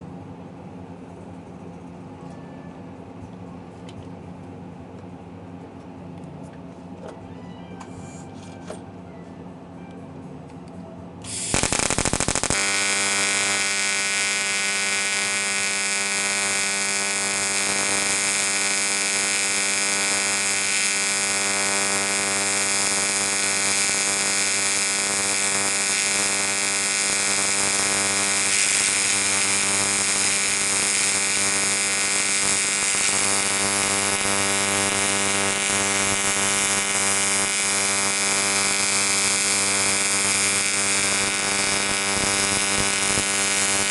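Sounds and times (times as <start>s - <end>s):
welding arc buzzing: 11.2s - 43.9s
welding arc crackle: 11.3s - 43.9s.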